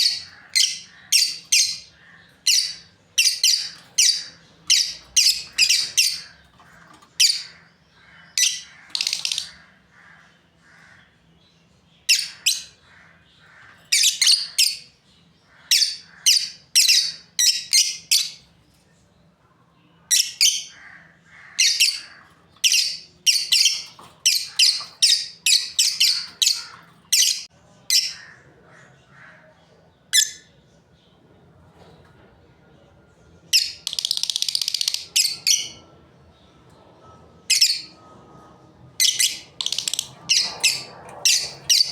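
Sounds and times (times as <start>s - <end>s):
lovebirds chirping: 0.0s - 19.0s, 19.9s - 31.2s, 33.4s - 41.9s.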